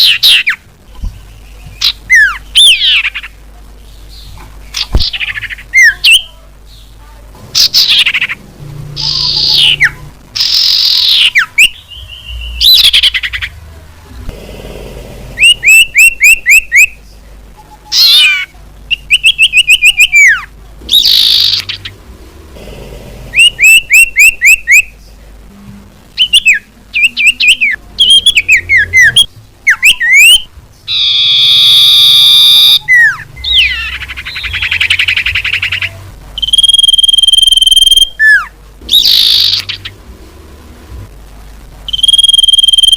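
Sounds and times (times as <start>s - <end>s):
bird whistles and trills: 15.4s - 17.0s, 17.9s - 21.9s, 23.4s - 24.9s, 26.2s - 39.9s, 41.9s - 42.9s.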